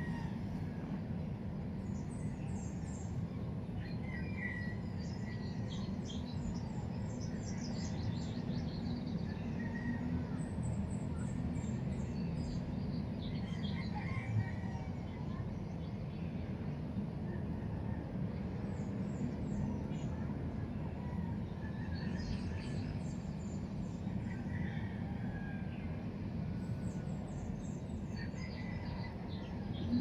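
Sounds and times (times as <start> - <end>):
low background rumble: 13.8 - 30.0.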